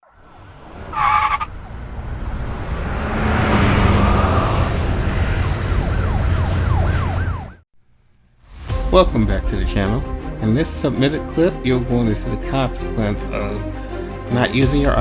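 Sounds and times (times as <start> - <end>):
vehicle and road noise: 0.1 - 7.6
emergency siren yelping: 5.1 - 7.6
horn blast: 8.5 - 15.0.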